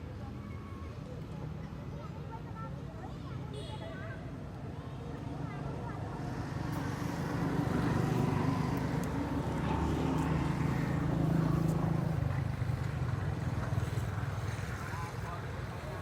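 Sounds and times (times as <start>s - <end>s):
vehicle engine passing: 6.3s - 15.7s.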